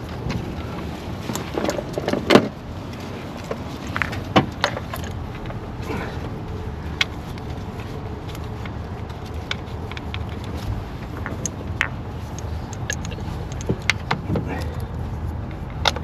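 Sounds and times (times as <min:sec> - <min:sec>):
low background hum: 0:00.0 - 0:16.0
hand tools clicking and knocking: 0:06.9 - 0:16.0.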